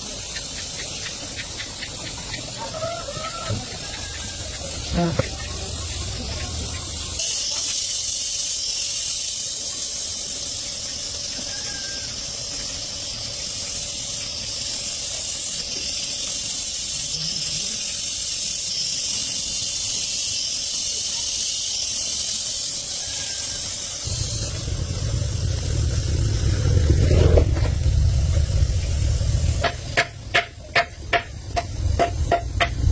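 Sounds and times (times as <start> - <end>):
high hiss from a nozzle: 0.0 - 27.0, 27.8 - 32.9
low rumble: 24.0 - 30.0.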